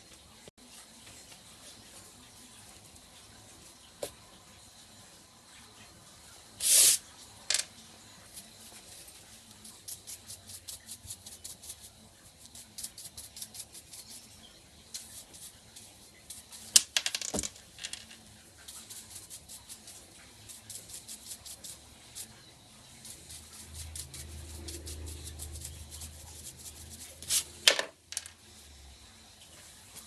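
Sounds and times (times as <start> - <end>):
small parts clattering: 16.7 - 18.2.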